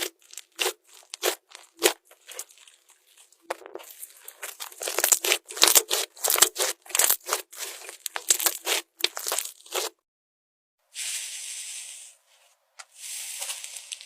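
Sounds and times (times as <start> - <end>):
slime crackling and popping: 0.0 - 9.9.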